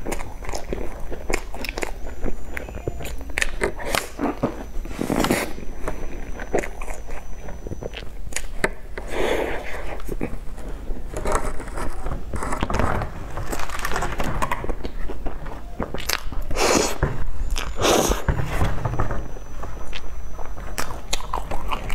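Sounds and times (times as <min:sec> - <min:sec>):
chewing and mouth sounds: 0:00.0 - 0:11.6, 0:13.5 - 0:18.3, 0:20.7 - 0:21.9
plastic box crackling: 0:10.5 - 0:15.1.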